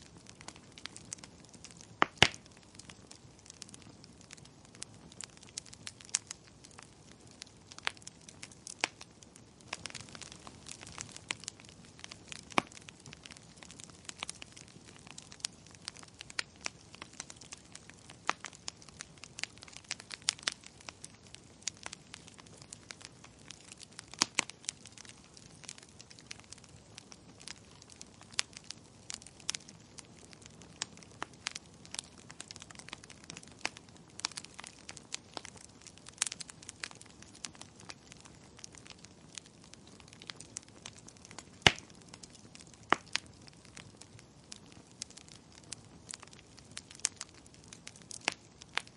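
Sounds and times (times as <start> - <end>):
wood fire crackling: 0.0 - 48.9.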